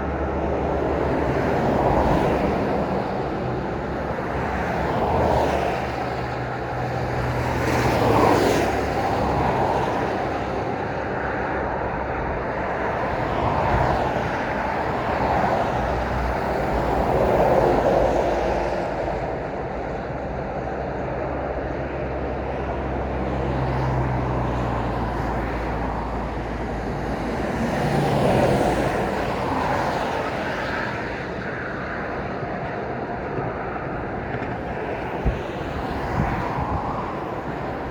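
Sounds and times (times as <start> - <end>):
cars and lorries passing: 0.0 - 37.9.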